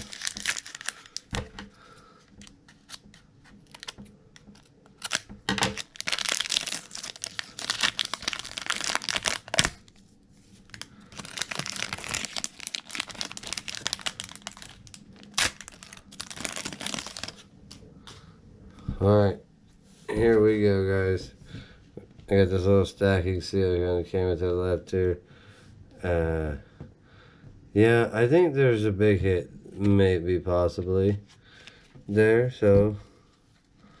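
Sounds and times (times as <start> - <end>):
foil wrappers crinkling: 0.0 - 10.0, 10.6 - 17.5.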